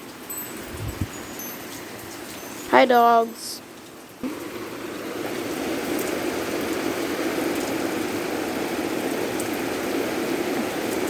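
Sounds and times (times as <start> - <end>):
torrential rain pouring: 0.0 - 11.0
raindrop ticks: 1.1 - 9.9.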